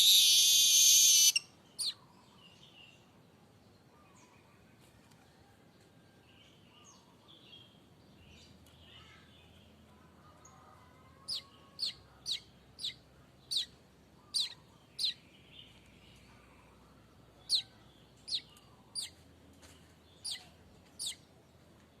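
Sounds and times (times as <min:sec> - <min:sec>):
weaver bird chirping: 0:00.0 - 0:02.1, 0:11.3 - 0:15.8, 0:17.4 - 0:19.2, 0:20.2 - 0:21.2.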